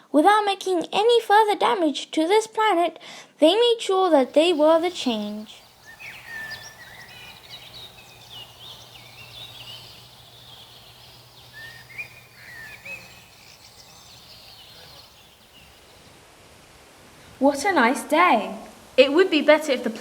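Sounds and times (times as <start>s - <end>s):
birds chirping and twittering: 4.0s - 16.2s.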